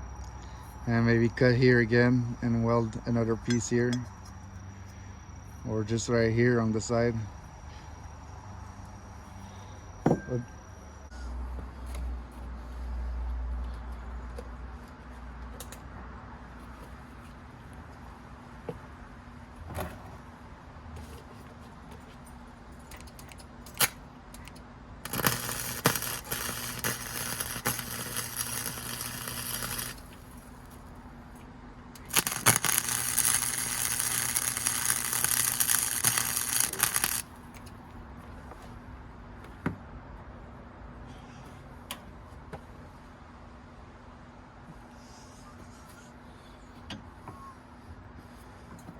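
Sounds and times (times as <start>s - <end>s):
low electrical buzz: 23.6s - 37.8s
crackling arc welding: 23.7s - 30.8s, 32.0s - 37.6s.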